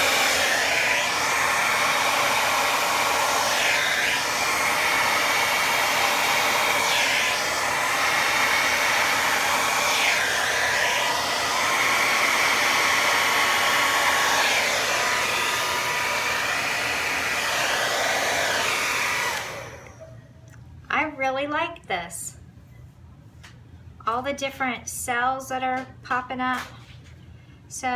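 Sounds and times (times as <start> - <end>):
hair dryer blowing: 0.0 - 20.1.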